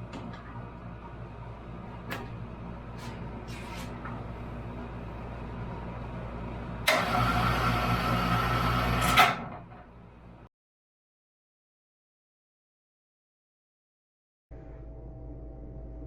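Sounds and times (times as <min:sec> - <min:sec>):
loud machine whirring: 0:06.8 - 0:09.6.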